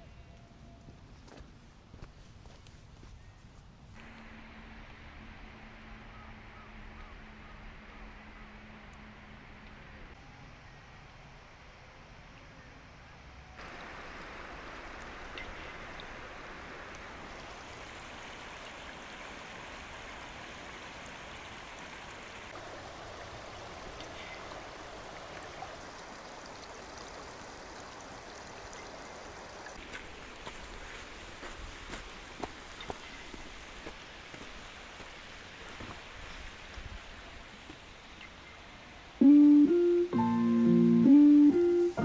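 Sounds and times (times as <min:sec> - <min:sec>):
stream water rushing: 0:13.6 - 0:42.0.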